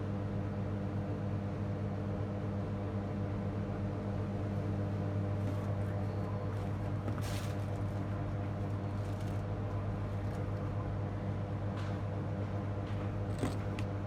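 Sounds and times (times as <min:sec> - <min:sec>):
electrical hum: 0:03.7 - 0:14.0.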